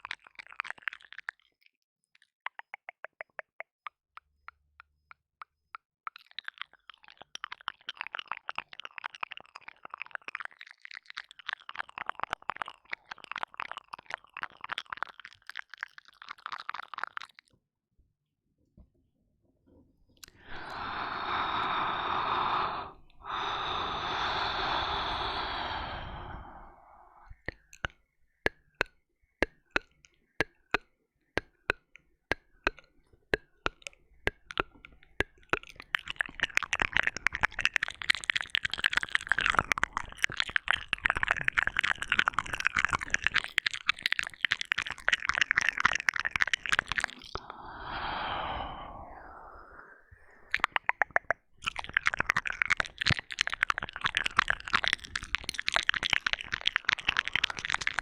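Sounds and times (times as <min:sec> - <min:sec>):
wet mouth clicks and licking: 0:00.0 - 0:04.6, 0:06.0 - 0:17.5, 0:20.2 - 0:58.0
breathy exhale: 0:20.3 - 0:27.4, 0:47.3 - 0:50.7.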